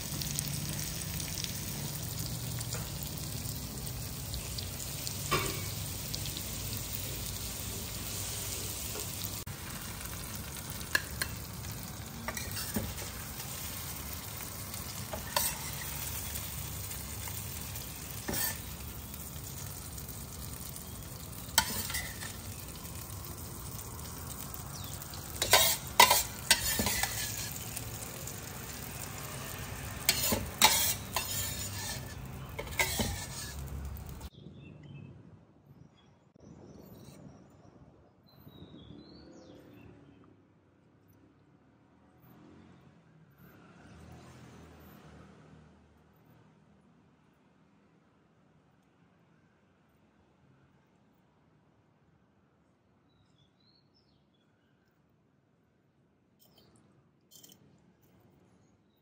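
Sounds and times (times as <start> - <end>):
prawns sizzling in a wok: 0.0 - 34.3
metal spoon scraping wok: 2.6 - 34.3
spoon clinking against wok: 10.8 - 16.6, 25.3 - 27.9, 30.0 - 33.7.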